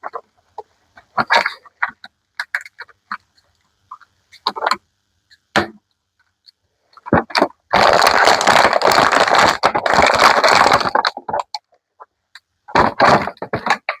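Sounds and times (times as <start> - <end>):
plastic and card crinkling: 7.3 - 11.6.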